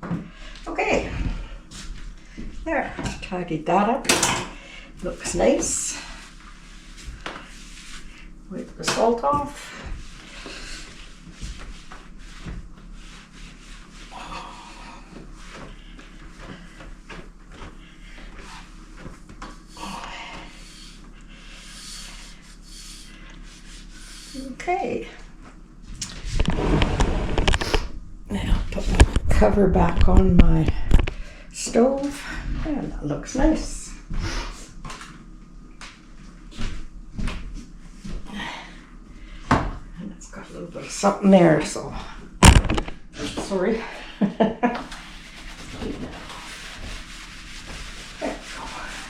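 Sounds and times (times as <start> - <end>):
cloth wiping a stovetop: 5.4 - 17.1, 44.8 - 49.0
short rubbing sound: 26.2 - 27.9, 44.9 - 49.0.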